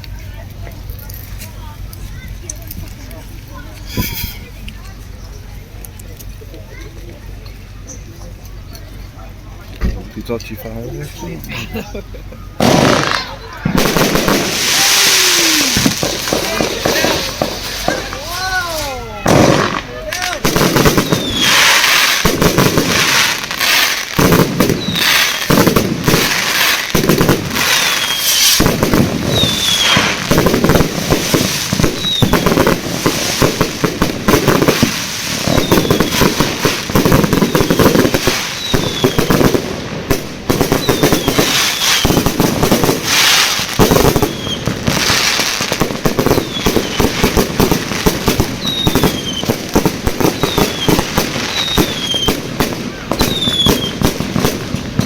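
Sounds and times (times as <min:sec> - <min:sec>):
fireworks bangs and crackling: 0:00.0 - 0:55.0
falling firework whistles: 0:12.6 - 0:19.8, 0:20.4 - 0:55.0.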